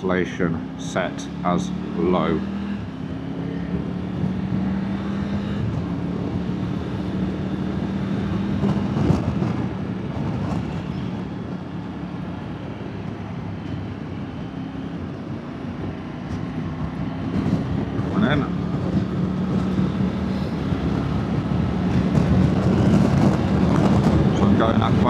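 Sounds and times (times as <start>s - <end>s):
wind and road noise: 0.0s - 25.0s.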